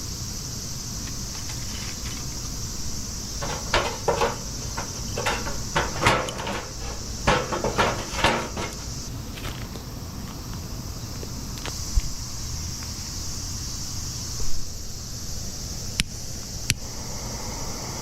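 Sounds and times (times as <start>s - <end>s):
clattering knocks: 3.2s - 9.1s.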